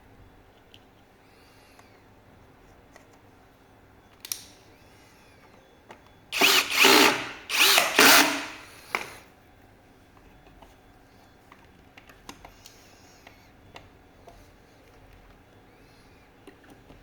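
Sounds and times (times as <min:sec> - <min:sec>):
power drill whirring: 0:06.3 - 0:08.7.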